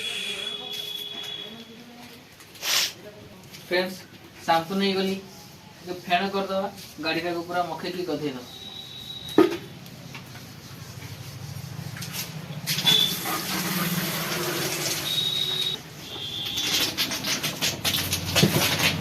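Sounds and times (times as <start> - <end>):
water jet spraying: 12.1 - 18.3.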